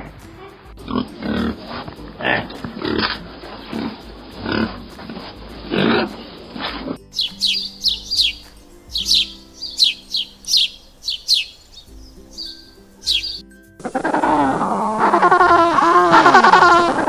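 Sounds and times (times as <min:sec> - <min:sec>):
small bird chirping: 0:05.6 - 0:17.0.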